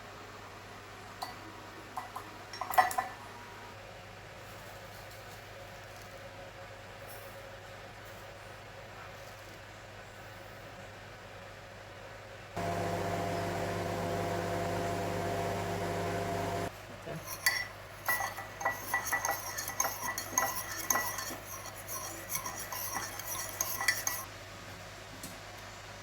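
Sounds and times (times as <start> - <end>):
electric hum: 12.6 - 16.7
spoon clinking against ceramic mug: 17.2 - 24.3.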